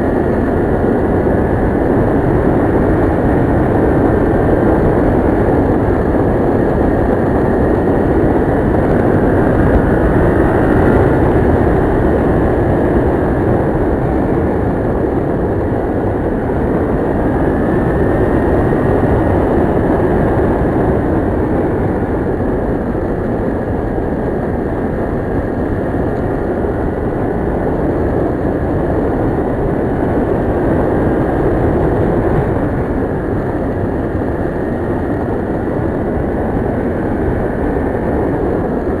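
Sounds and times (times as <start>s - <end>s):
road noise: 0.0s - 39.0s
wind rushing: 24.9s - 39.0s.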